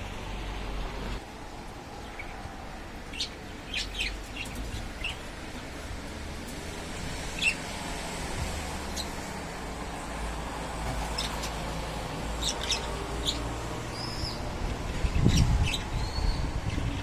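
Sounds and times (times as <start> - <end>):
wind rumble on microphone: 3.9 - 17.0.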